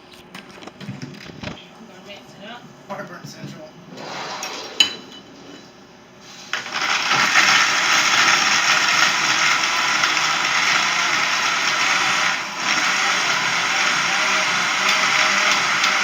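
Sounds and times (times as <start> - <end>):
blender running: 6.5 - 16.0.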